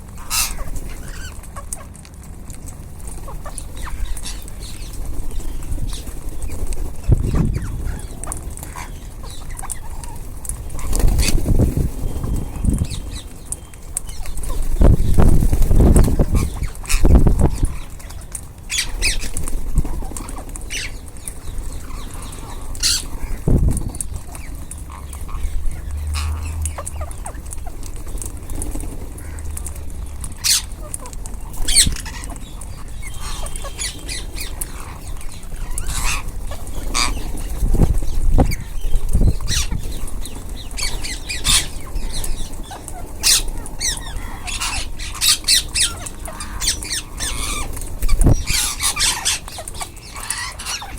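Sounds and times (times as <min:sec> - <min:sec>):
parrots squawking: 0:00.0 - 0:01.9, 0:03.3 - 0:06.0, 0:07.0 - 0:11.5, 0:15.8 - 0:21.0, 0:21.8 - 0:28.0, 0:29.1 - 0:50.9.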